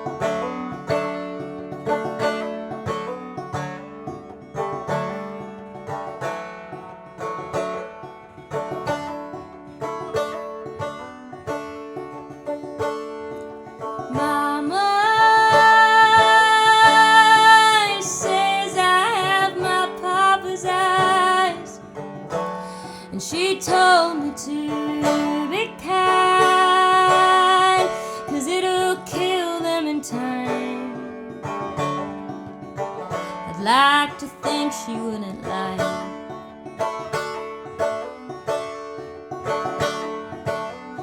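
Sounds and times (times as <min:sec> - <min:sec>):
plucked acoustic string instrument: 0:00.0 - 0:41.0
wordless singing voice: 0:14.1 - 0:21.8, 0:23.0 - 0:31.0.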